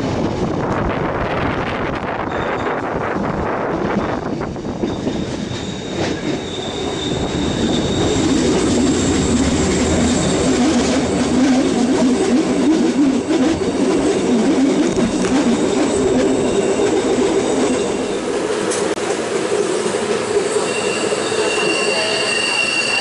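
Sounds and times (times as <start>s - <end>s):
train running on rails: 0.0s - 23.0s
high wheel squeal: 2.2s - 3.0s, 4.8s - 11.7s, 12.6s - 18.9s, 19.7s - 23.0s.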